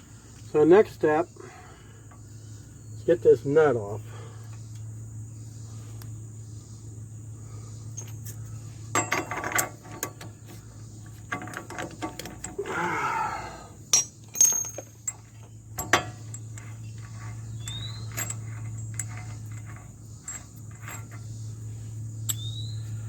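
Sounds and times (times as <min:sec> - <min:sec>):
wrench clinking on metal: 0:08.9 - 0:10.3, 0:11.3 - 0:12.8, 0:13.9 - 0:21.2.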